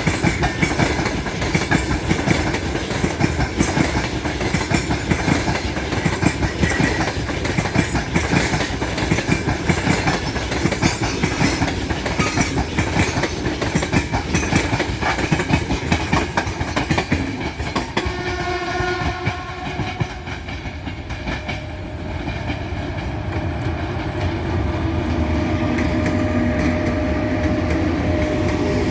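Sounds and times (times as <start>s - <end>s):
freight train rumbling past: 0.0s - 28.9s.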